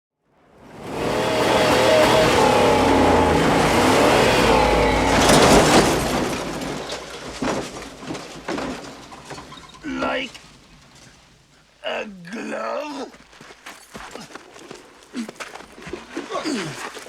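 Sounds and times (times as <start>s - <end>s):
car engine revving: 0.6s - 8.6s
loud burst of noise: 0.7s - 7.9s
scattered knocks: 0.9s - 11.2s.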